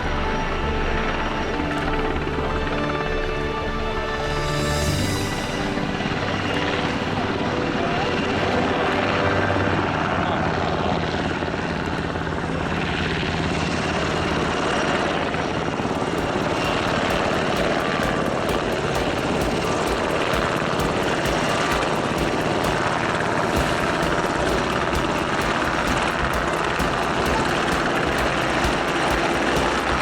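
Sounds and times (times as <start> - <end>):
helicopter rotor beating: 0.0 - 30.0
turbine engine noise: 0.0 - 30.0.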